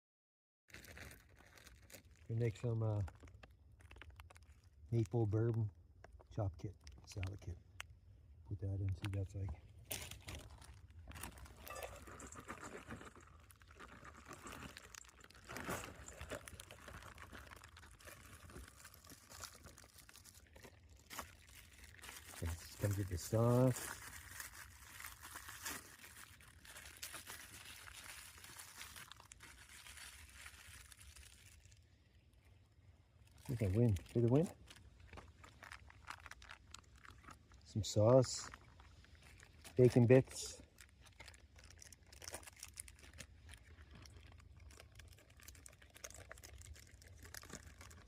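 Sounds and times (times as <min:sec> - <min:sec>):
plastic packet crinkling: 0:00.7 - 0:08.0, 0:08.9 - 0:32.5, 0:33.2 - 0:48.0.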